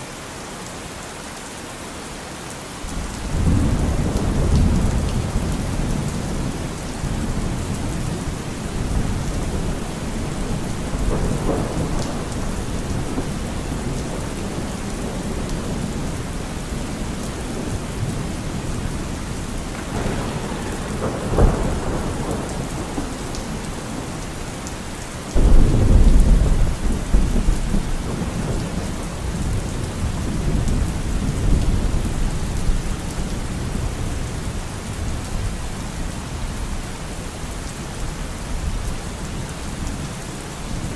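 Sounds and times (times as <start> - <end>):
steady rain falling: 0.0 - 40.9
loud thunderclap: 2.9 - 24.7, 25.3 - 34.1
thunder rolling: 2.9 - 34.1.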